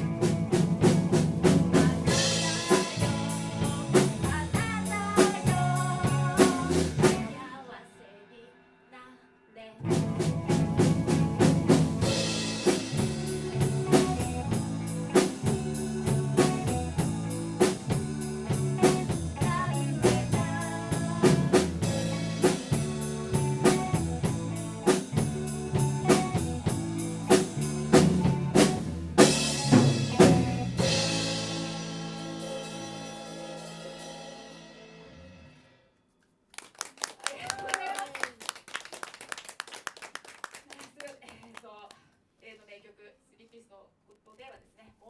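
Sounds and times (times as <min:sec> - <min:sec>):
rock band playing live: 0:00.0 - 0:07.4, 0:09.8 - 0:35.6
cymbal crashes: 0:30.8 - 0:35.8.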